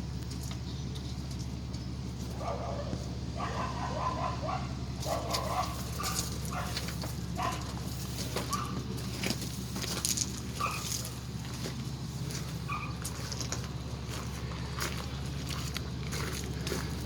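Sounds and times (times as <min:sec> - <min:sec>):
steady low hum: 0:00.0 - 0:17.0
dog barking and yipping: 0:02.4 - 0:07.8, 0:08.4 - 0:08.8, 0:10.6 - 0:11.0, 0:12.7 - 0:13.0.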